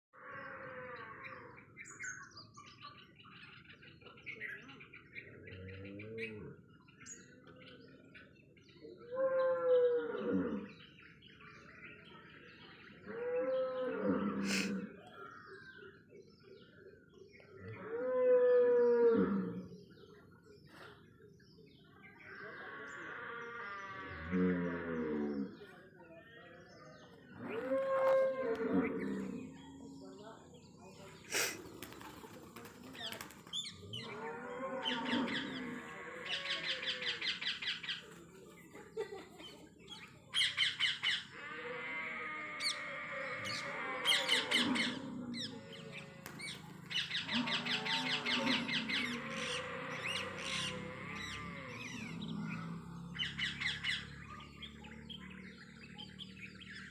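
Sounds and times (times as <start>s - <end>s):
low moo-like animal call: 0.2s - 1.6s, 9.0s - 10.8s, 13.0s - 15.6s, 17.6s - 19.8s, 22.2s - 25.8s, 27.2s - 30.2s, 33.8s - 37.4s, 41.2s - 54.5s.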